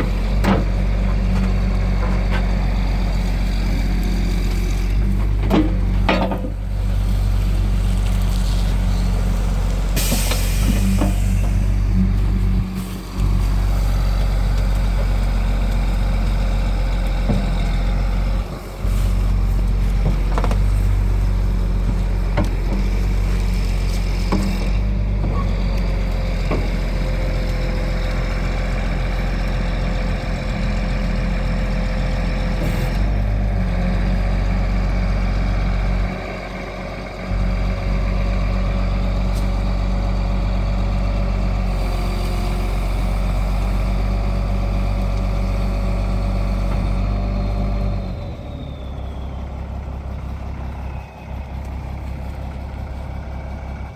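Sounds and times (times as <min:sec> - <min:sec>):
diesel truck engine running: 0:00.0 - 0:53.9
knocks and clanks: 0:05.2 - 0:06.6.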